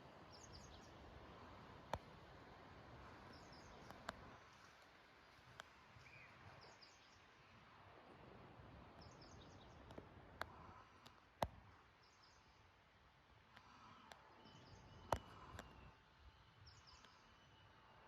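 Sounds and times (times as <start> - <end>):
small birds chirping: 0.2 - 1.2, 3.2 - 7.6, 11.8 - 12.8, 13.5 - 18.0.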